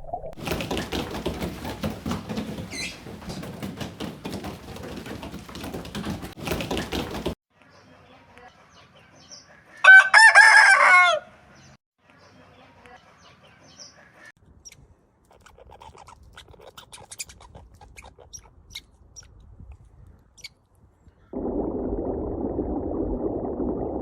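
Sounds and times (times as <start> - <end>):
faint clicks and rustles: 0.4 - 7.4
rooster crowing: 9.8 - 11.3.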